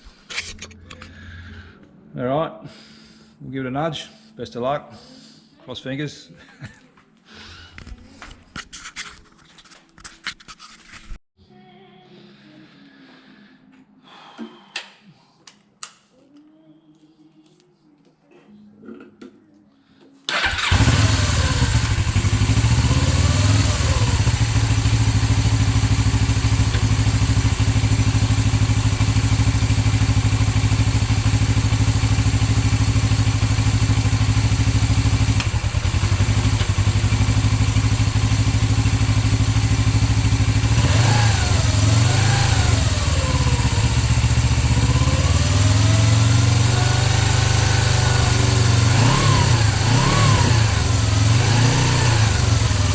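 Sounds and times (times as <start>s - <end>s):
motorcycle engine idling: 20.3s - 52.9s
motorcycle throttle blips: 20.3s - 52.9s.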